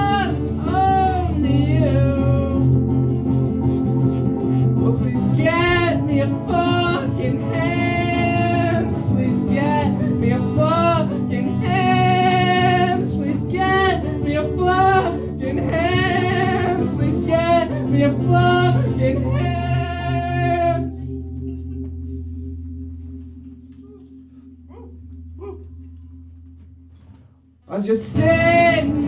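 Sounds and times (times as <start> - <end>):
person singing long notes: 0.0 - 2.8, 4.8 - 21.1, 28.1 - 29.0.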